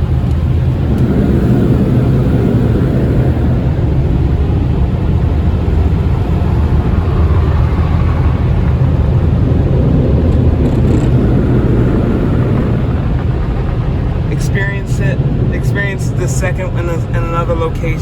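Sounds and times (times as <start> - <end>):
air blowers roaring: 0.0 - 18.0.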